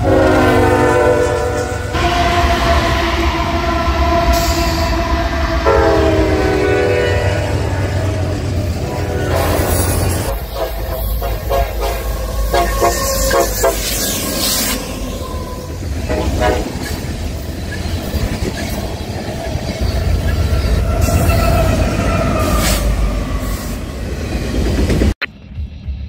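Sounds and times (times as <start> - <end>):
diesel locomotive horn blasts: 0.0 - 16.9
heavy rumble of train rolling: 0.0 - 26.0.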